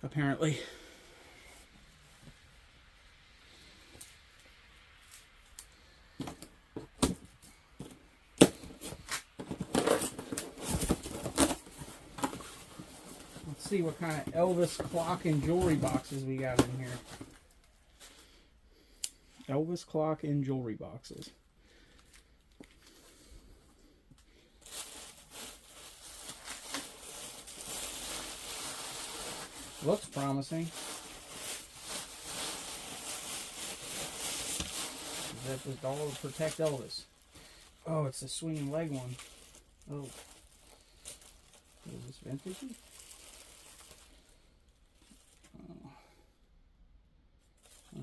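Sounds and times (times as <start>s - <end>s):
rummaging through box: 8.6s - 17.4s.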